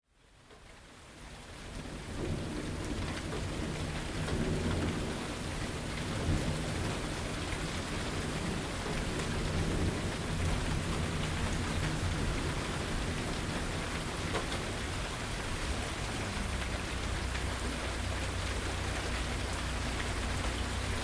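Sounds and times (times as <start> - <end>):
steady rain falling: 0.0 - 21.0
rolling thunder: 2.0 - 17.7.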